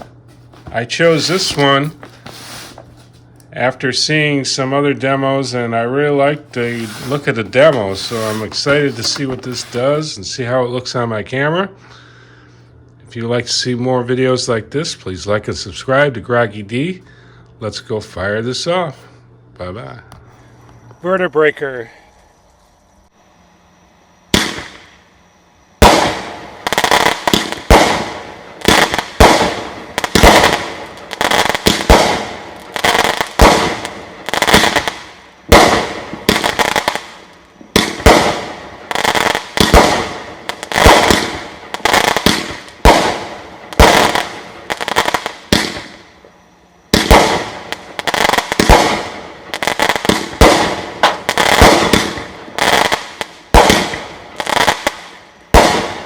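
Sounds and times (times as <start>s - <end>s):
firework shots: 0.0s - 3.2s, 6.3s - 10.1s, 24.3s - 25.1s, 25.8s - 46.2s, 46.8s - 56.0s.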